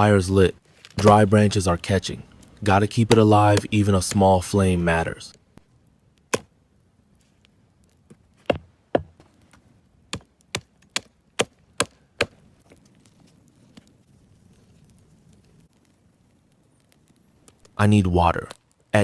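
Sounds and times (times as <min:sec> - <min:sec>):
axe chopping wood: 0:03.0 - 0:04.2, 0:06.3 - 0:06.5, 0:08.4 - 0:09.2, 0:10.1 - 0:12.4.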